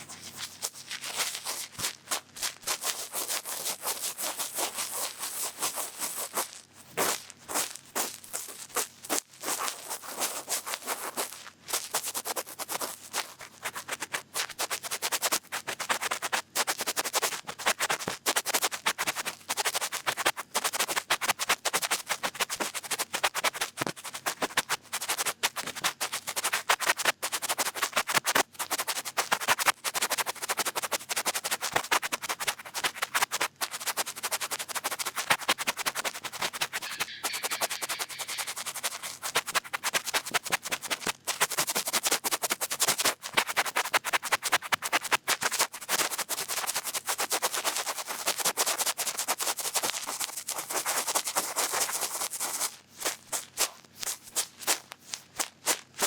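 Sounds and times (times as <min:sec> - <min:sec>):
cotton bud scratching microphone: 0:30.8 - 0:41.7.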